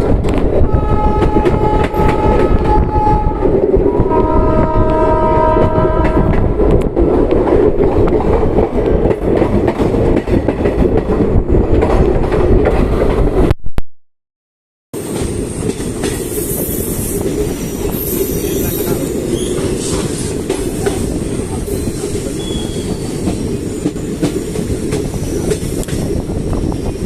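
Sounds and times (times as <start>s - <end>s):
train rumbling: 0.0s - 13.5s, 15.0s - 27.0s
train horn blasts: 0.7s - 6.6s.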